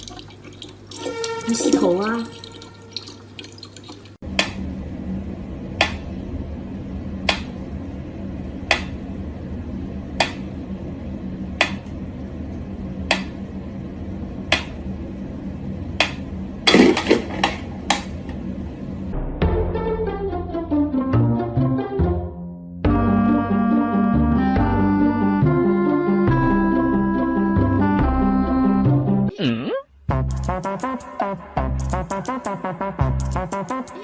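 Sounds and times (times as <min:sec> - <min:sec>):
steady low hum: 0:04.2 - 0:19.5.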